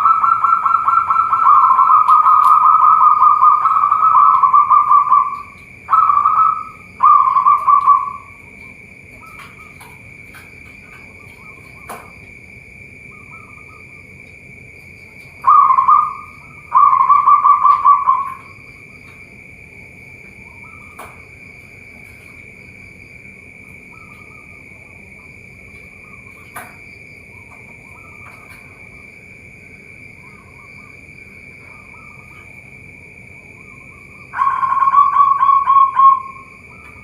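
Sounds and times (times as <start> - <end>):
dove cooing: 0.0 - 12.1, 15.4 - 18.7, 30.2 - 32.6, 33.6 - 37.0
high-pitched hum: 0.0 - 37.0.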